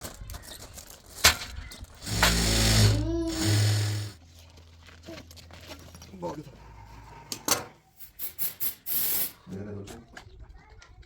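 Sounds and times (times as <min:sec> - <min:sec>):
electric sewing machine running: 0:02.0 - 0:04.2.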